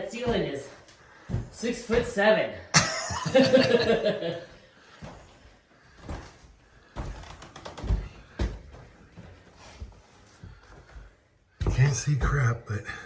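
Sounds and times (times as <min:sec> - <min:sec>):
person speaking: 0:11.6 - 0:13.0.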